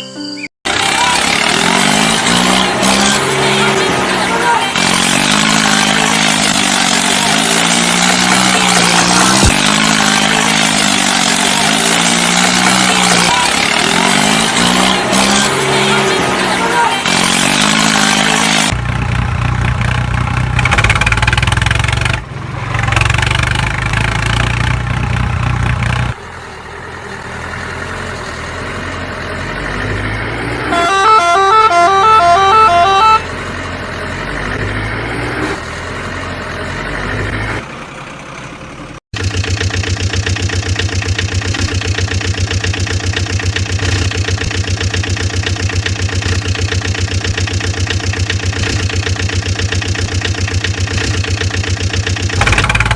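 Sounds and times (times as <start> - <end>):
vehicle engine: 0.6 - 52.9
pulsing engine chug: 0.7 - 28.4, 37.7 - 52.9
two-tone musical horn: 30.6 - 33.3.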